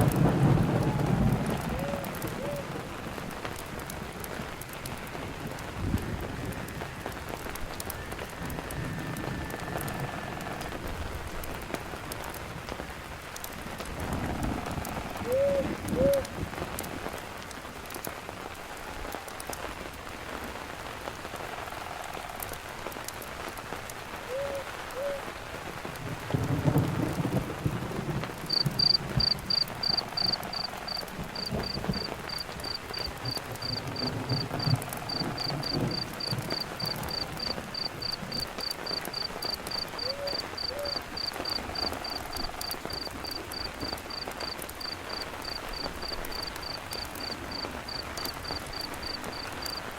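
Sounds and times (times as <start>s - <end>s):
steady rain falling: 0.0s - 49.9s
cricket chirping: 28.5s - 49.8s.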